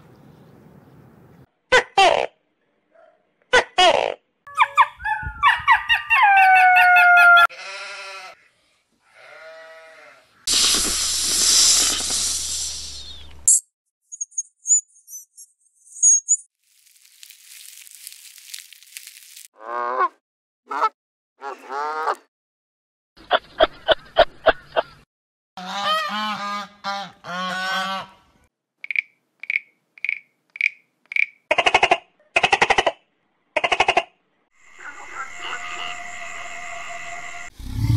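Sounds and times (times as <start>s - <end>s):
goat bleating: 7.5s - 8.4s, 9.2s - 10.2s
hissing rattle: 10.5s - 13.1s
high chirps: 10.5s - 16.5s.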